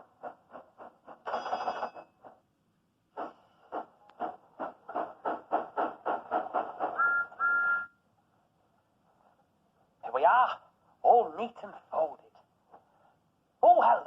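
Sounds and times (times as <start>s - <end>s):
steam locomotive chuffing: 0.0s - 1.5s, 3.2s - 7.6s
two-note train whistle: 7.0s - 8.0s.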